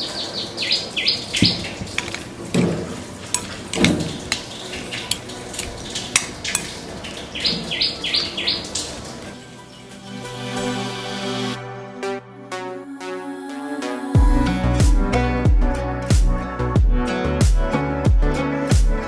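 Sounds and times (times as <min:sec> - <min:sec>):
bird calling: 0:00.0 - 0:02.2, 0:04.0 - 0:09.2
utensils clinking against a bowl: 0:01.2 - 0:07.7.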